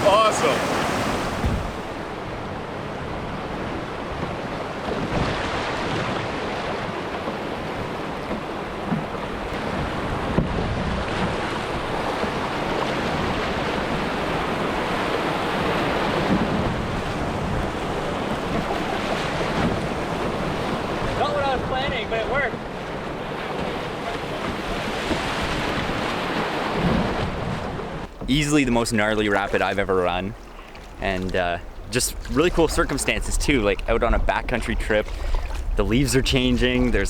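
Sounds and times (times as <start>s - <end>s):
river rapids rushing: 0.0s - 2.0s
wind noise on microphone: 0.6s - 7.0s, 7.7s - 28.3s, 31.7s - 37.0s.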